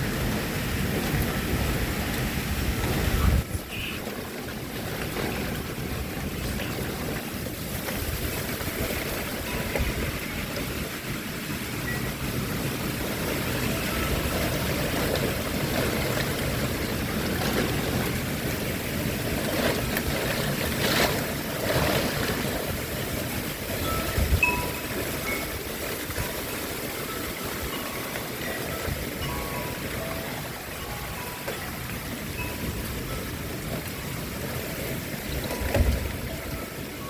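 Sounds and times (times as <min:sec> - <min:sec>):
storm wind gusting: 0:00.0 - 0:28.1.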